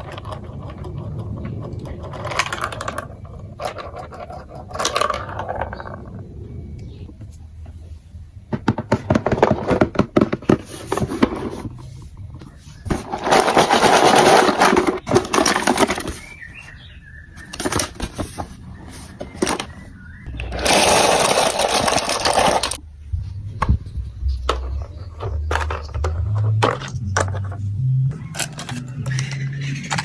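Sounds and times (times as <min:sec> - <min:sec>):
marbles rattling along plastic run: 0:00.0 - 0:06.2, 0:13.1 - 0:16.2, 0:20.5 - 0:22.8
low hum rising in pitch: 0:22.8 - 0:30.0.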